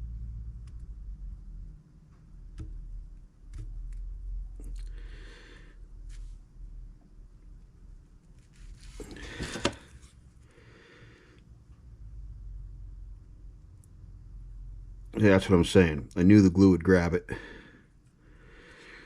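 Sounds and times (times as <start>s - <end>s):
steady low hum: 0.0s - 19.0s
rustling scrapes: 8.4s - 10.2s.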